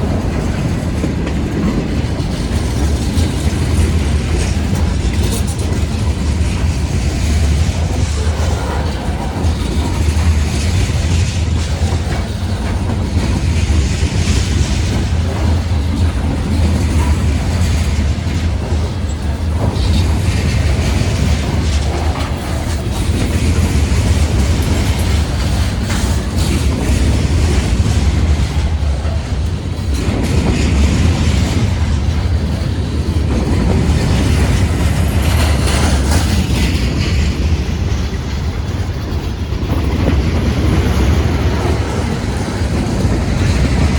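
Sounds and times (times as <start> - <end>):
train low rumble: 0.0 - 43.9
train wheels clicking on rail joints: 0.0 - 43.9.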